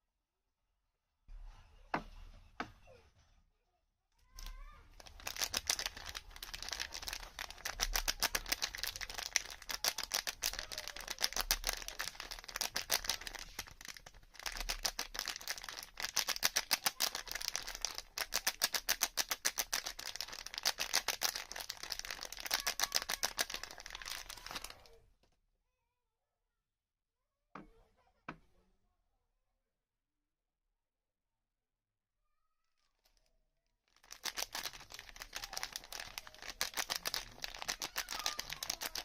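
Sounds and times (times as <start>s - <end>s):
soap crackling and clicking: 4.4s - 24.9s, 34.0s - 39.0s.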